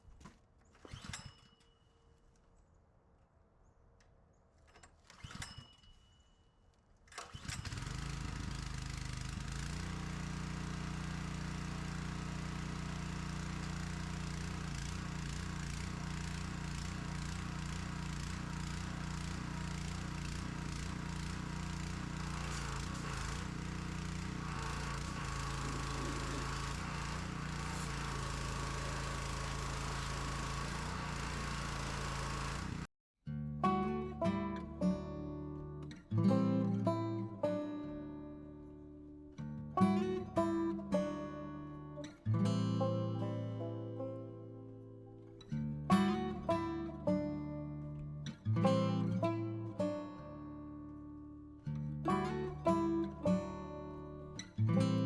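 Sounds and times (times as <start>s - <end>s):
engine running steadily: 7.2s - 32.9s.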